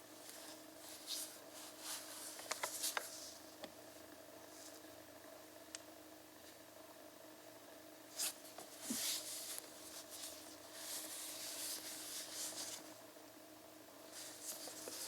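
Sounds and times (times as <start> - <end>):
faint steady hum: 0.0 - 15.0
rubbing and scraping handling noises: 0.1 - 3.5, 8.1 - 13.0, 14.1 - 15.0.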